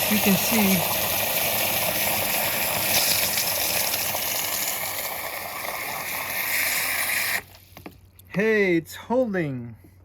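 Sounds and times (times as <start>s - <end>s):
water gushing into a container: 0.0s - 7.6s.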